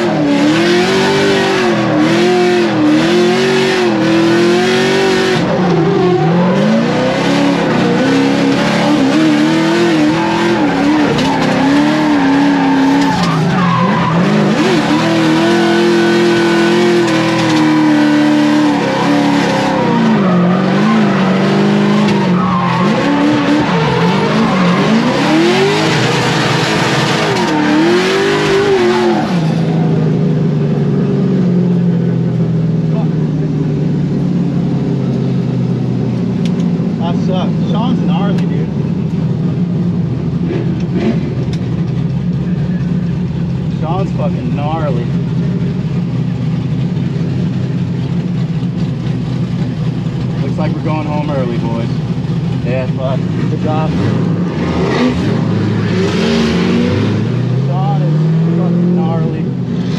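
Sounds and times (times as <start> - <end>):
car engine revving: 0.0 - 59.9
tyres squealing: 7.4 - 29.5.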